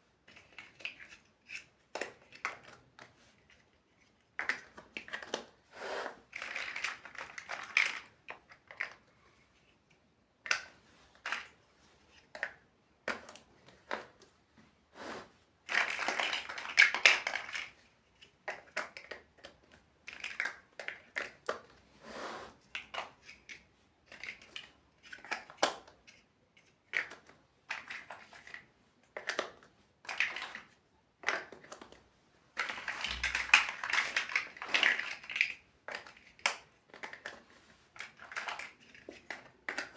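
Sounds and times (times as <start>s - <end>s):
plastic bricks clattering: 6.1s - 9.0s, 15.7s - 17.8s, 29.2s - 32.0s, 32.6s - 39.9s
plastic bricks clicking together: 6.3s - 9.0s, 15.7s - 21.7s, 32.6s - 37.4s.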